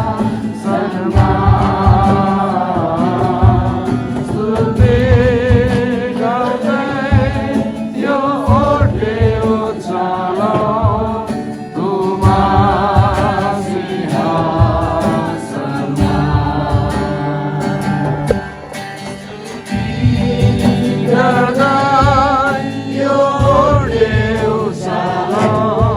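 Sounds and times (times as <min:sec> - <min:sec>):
voices singing with vibrato: 0:00.0 - 0:25.9
instrumental backing with bass beat: 0:14.4 - 0:24.6.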